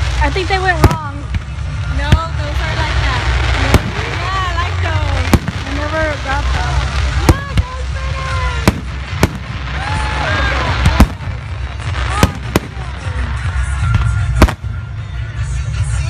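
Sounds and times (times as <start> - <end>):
firework shells bursting: 8.5 - 14.7.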